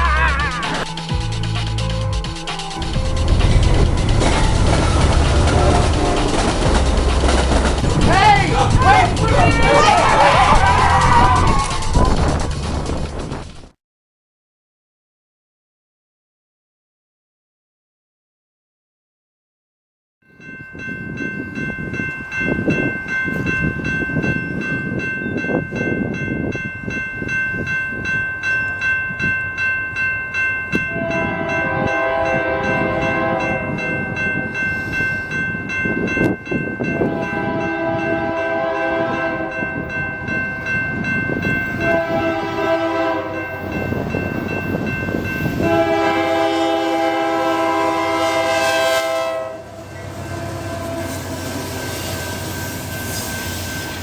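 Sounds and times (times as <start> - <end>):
crossing bell ringing rapidly: 0.0 - 13.0, 20.2 - 54.0
train rumble: 0.0 - 13.8, 20.4 - 54.0
locomotive horn: 4.8 - 6.8, 30.9 - 33.8, 37.0 - 39.8, 41.8 - 43.7, 45.4 - 53.1.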